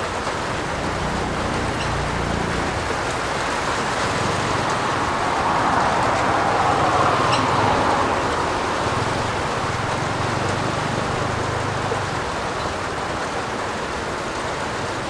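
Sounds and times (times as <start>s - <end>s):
heavy rain on a roof: 0.0s - 15.0s.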